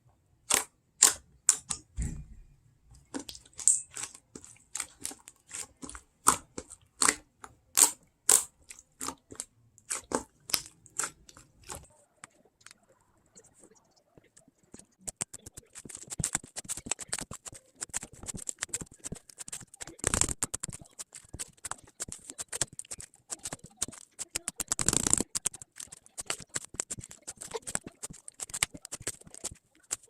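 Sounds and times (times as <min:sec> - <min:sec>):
slime squelching: 0:00.4 - 0:02.2, 0:03.0 - 0:30.0
slime squished by hand: 0:03.0 - 0:11.9.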